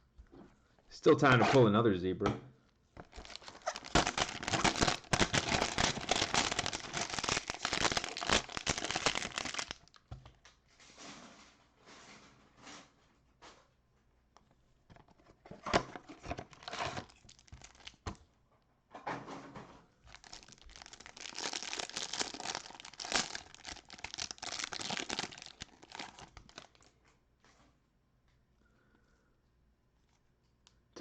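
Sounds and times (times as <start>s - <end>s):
packaging crinkling: 3.0s - 10.1s, 15.8s - 18.2s, 20.1s - 27.0s.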